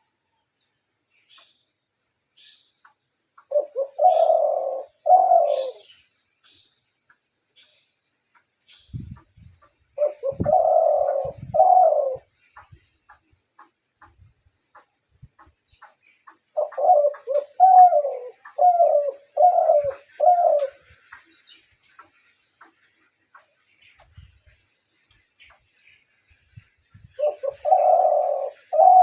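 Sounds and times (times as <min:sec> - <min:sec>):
dove cooing: 0:03.5 - 0:05.9, 0:10.0 - 0:12.4, 0:16.5 - 0:20.9, 0:27.2 - 0:29.0.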